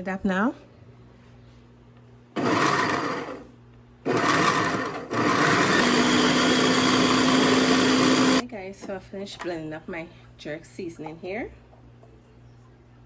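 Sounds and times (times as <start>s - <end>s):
food processor chopping: 2.4s - 3.4s, 4.1s - 8.4s.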